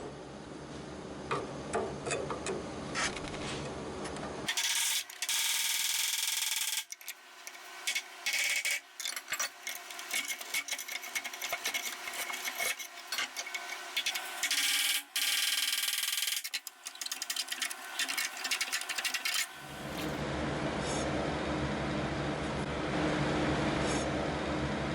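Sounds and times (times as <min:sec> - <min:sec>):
tool scraping sheet metal: 0:06.2 - 0:15.4, 0:16.2 - 0:20.2.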